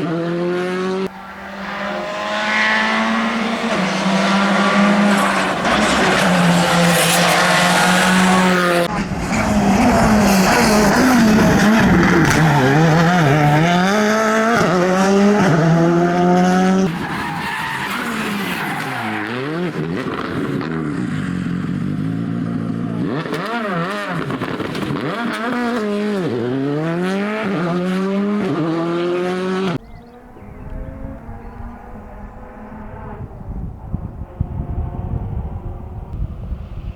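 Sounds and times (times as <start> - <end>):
rally car engine revving: 0.0 - 36.4.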